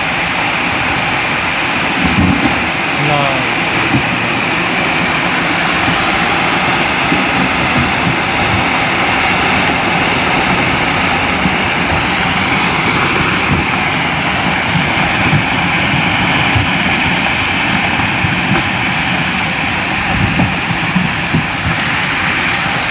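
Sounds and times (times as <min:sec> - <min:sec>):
landslide rumbling roar: 0:00.0 - 0:22.9.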